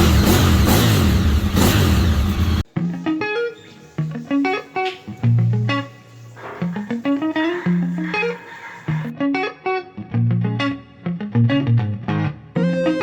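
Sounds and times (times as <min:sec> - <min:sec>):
racing motorcycle engine revving: 0:00.0 - 0:02.6
electric guitar music: 0:00.0 - 0:13.0.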